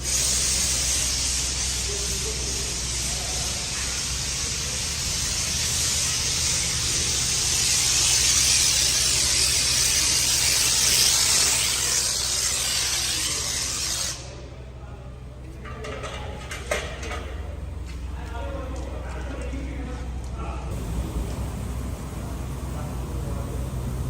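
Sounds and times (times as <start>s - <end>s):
pressure washer spraying: 0.0s - 14.3s, 20.7s - 24.0s.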